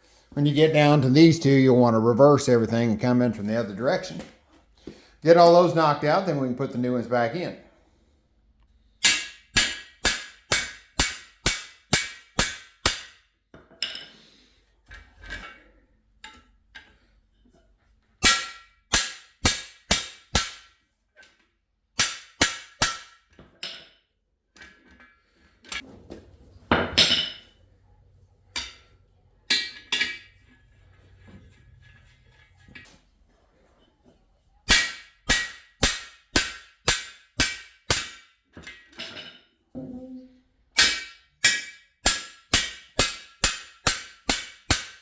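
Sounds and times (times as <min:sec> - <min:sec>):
hammer striking metal rod: 0:09.0 - 0:13.2, 0:18.2 - 0:20.7, 0:22.0 - 0:23.2, 0:34.7 - 0:38.3, 0:40.8 - 0:45.0.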